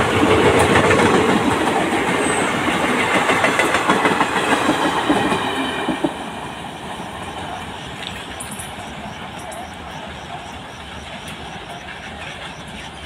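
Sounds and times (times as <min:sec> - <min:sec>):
train rushing past: 0:00.0 - 0:13.0.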